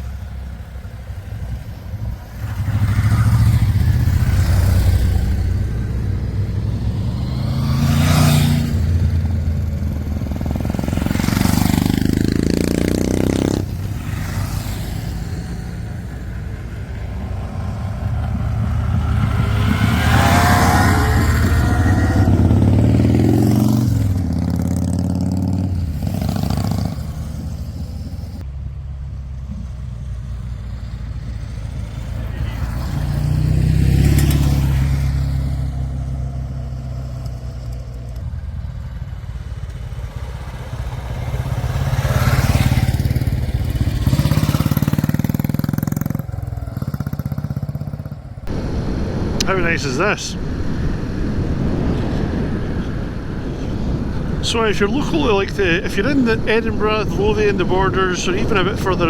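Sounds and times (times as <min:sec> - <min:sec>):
wind rushing over microphone: 0:01.8 - 0:28.4, 0:48.4 - 0:59.0
motorcycle engine accelerating: 0:02.0 - 0:28.5, 0:29.6 - 0:49.5.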